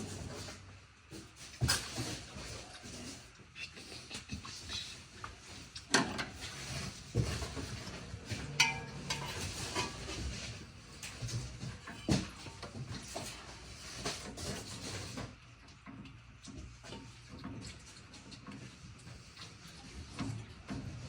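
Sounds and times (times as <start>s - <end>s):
metal tools clinking and scraping: 6.2s - 13.4s.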